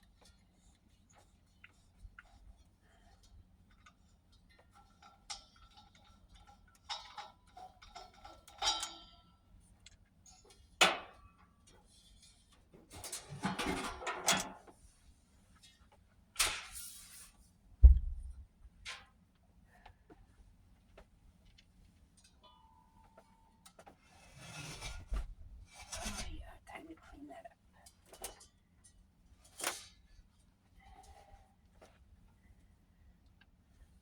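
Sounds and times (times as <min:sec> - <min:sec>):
heavy low thump: 0:17.8 - 0:18.4.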